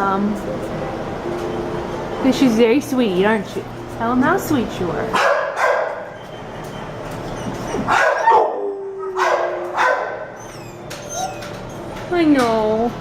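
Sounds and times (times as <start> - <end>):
dog barking: 5.2 - 6.1, 7.9 - 10.3.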